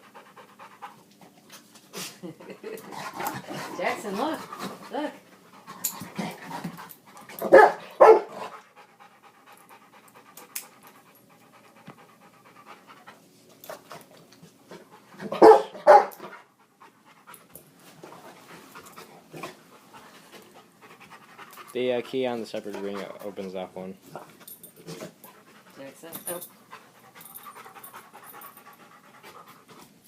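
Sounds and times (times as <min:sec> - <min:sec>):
dog panting: 0:00.0 - 0:30.0
dog snorting: 0:20.6 - 0:23.5.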